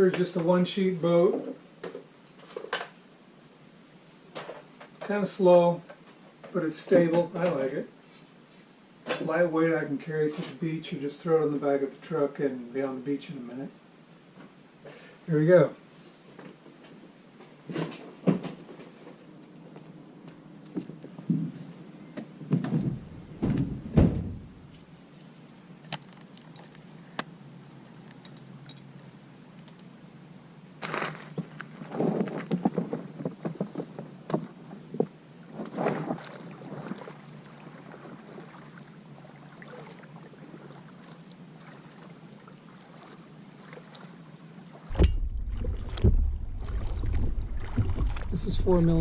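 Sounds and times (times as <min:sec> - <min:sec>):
hollow thunks on plastic hull: 0:22.6 - 0:24.6, 0:44.9 - 0:49.0
paddle strokes splashing: 0:35.7 - 0:49.0
wind buffeting microphone: 0:44.9 - 0:49.0.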